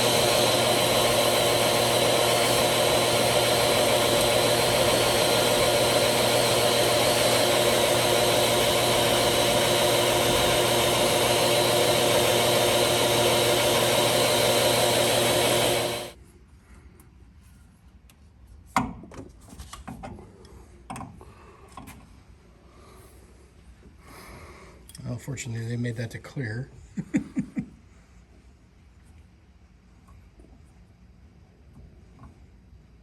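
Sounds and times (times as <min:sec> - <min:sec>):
shop vacuum running: 0:00.0 - 0:16.2.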